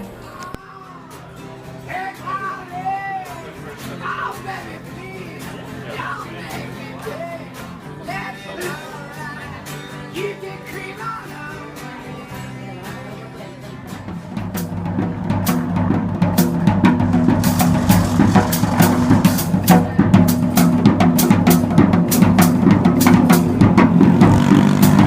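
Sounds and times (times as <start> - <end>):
drums played fast: 14.0 - 25.0.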